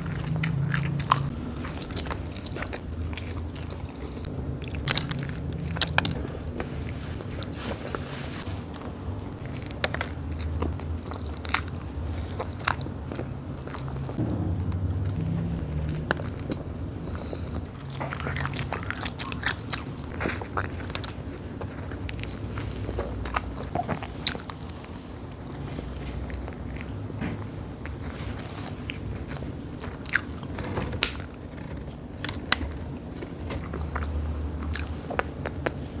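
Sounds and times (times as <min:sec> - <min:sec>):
low steady hum: 0:00.0 - 0:36.0
wet chewing with crunches: 0:00.0 - 0:36.0.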